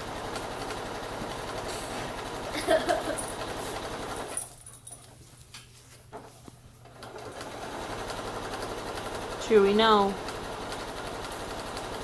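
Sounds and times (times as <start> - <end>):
sewing machine running: 0.0 - 4.4, 6.9 - 12.0.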